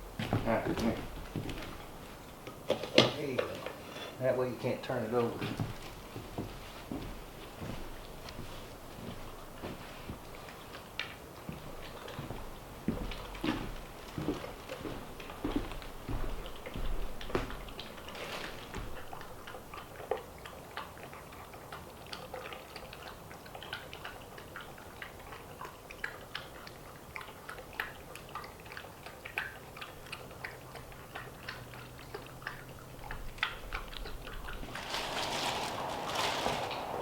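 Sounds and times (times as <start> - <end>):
animal chewing and clicks: 19.0 - 34.6.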